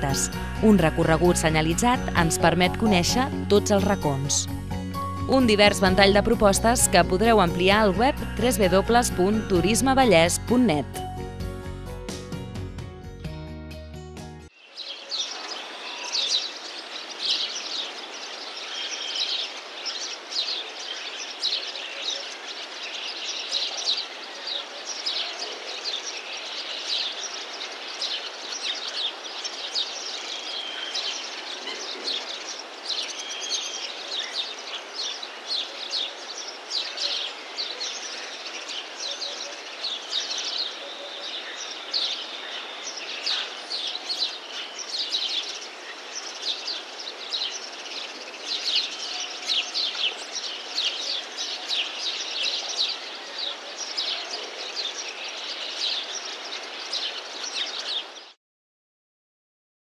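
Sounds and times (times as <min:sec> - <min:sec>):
small birds chirping and trilling: 0:14.6 - 0:58.4.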